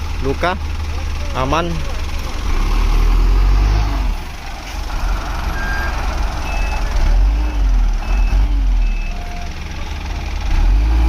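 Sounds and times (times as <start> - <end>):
heavy vehicle engines rumbling: 0.0 - 11.0
short high beeps: 5.5 - 9.4.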